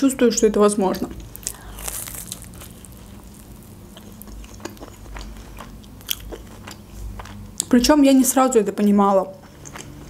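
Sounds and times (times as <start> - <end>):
low steady hum: 0.0 - 10.0
mouth biting and chewing: 1.2 - 7.7.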